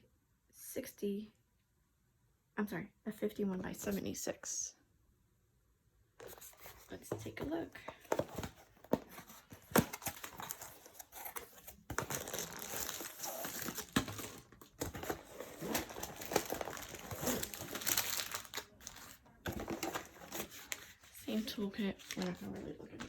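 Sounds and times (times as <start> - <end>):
plastic packaging crinkling: 7.9 - 23.0.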